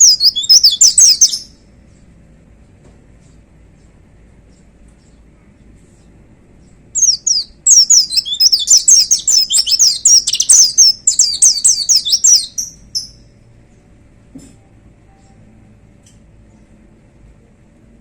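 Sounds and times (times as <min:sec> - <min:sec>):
bird singing fast high song: 0:00.0 - 0:01.6, 0:06.6 - 0:13.3.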